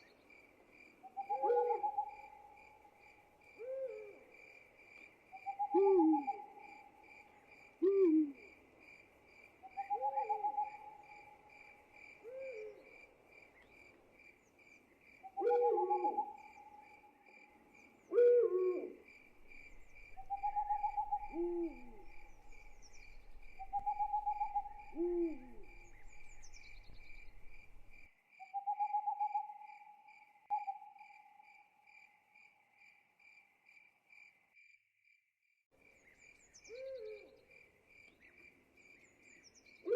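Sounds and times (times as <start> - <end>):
crickets chirping: 0.0 - 34.8
owl hooting: 1.1 - 2.5, 3.6 - 4.2, 5.4 - 6.8, 7.8 - 8.5, 9.7 - 11.4, 15.3 - 16.9, 18.1 - 29.7, 36.7 - 37.3
low falling bird calls: 17.8 - 28.1.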